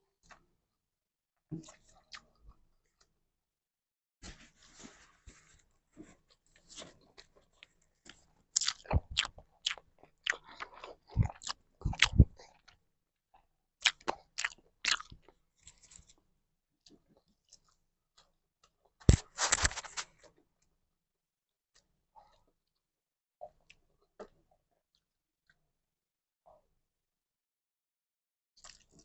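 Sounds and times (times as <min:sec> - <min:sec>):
chewing and crunching food: 0:00.1 - 0:00.4, 0:01.6 - 0:03.2, 0:05.3 - 0:20.7, 0:28.6 - 0:29.0.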